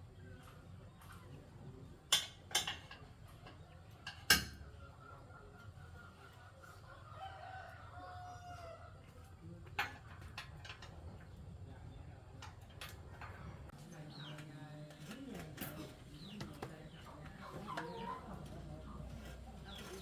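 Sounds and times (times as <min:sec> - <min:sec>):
rooster crowing: 0:07.2 - 0:08.9.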